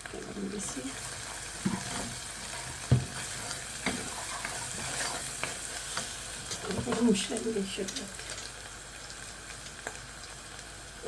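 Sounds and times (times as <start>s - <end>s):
onions sizzling in oil: 0.0s - 11.0s
spoon knocking against pan: 2.7s - 4.1s.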